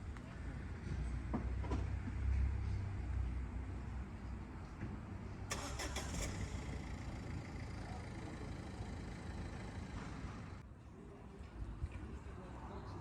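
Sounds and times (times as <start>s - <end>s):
car engine running: 6.4s - 10.6s.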